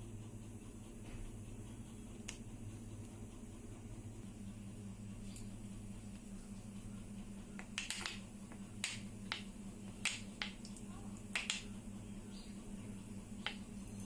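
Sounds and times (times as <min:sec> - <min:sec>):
steady low hum: 0:00.0 - 0:14.0
sharp clicks and ticks: 0:07.6 - 0:11.7.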